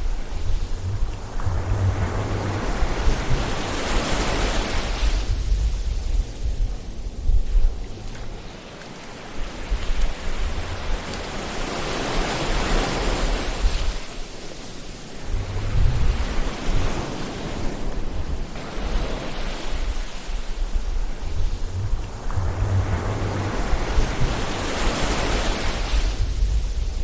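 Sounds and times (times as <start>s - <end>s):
low rumble: 0.0s - 8.3s, 15.2s - 16.6s, 20.5s - 27.0s
ocean waves washing in: 0.0s - 27.0s.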